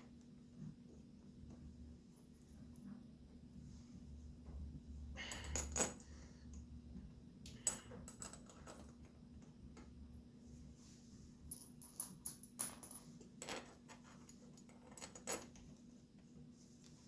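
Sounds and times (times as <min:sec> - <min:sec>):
small metal fasteners clinking: 0:11.5 - 0:15.7.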